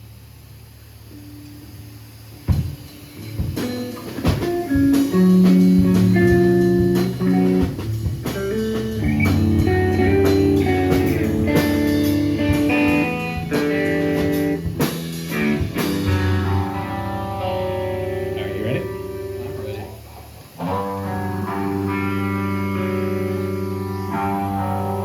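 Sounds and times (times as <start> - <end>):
bass guitar: 0.0 - 25.0
electric guitar notes: 0.2 - 25.0
drum hits: 2.5 - 19.5.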